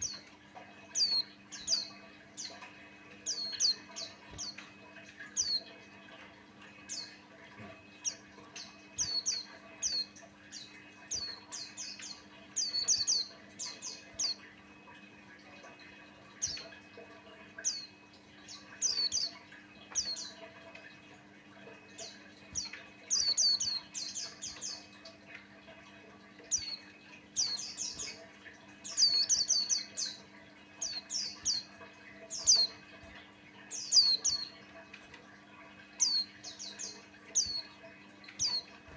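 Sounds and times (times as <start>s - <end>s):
bird high chirps: 0.0s - 5.8s, 7.9s - 14.5s, 17.6s - 20.4s, 22.0s - 24.9s, 26.4s - 32.8s, 33.7s - 34.6s, 36.0s - 38.9s
faint low hum: 0.0s - 38.9s.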